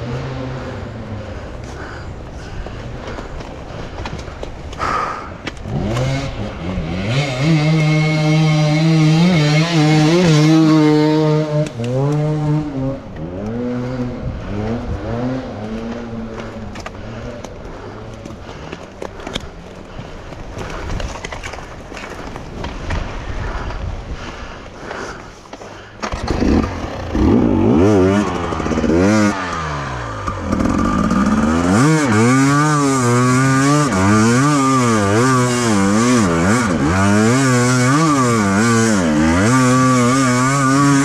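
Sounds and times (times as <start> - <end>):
dirt bike engine revving: 5.6 - 18.7, 26.0 - 41.0.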